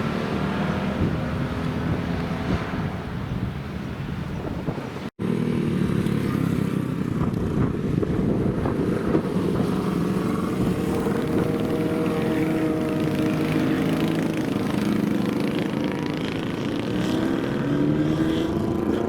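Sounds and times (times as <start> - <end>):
motorcycle engine running: 5.2 - 19.0.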